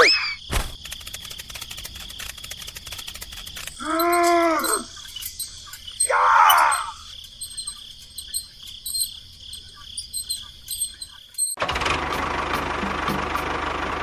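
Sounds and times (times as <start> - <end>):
insects chirring: 0.0 - 11.6
rough call: 3.8 - 7.8.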